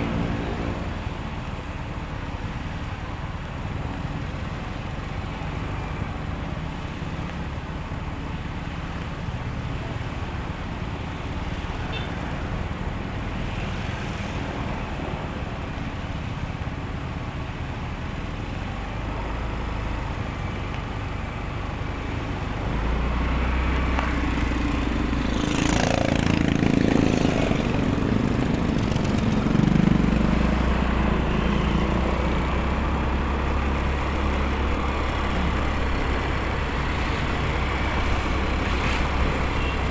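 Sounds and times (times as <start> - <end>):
passing traffic: 0.0 - 39.9
heavy vehicle passing close: 18.6 - 39.9
motorcycle engine: 21.0 - 39.9.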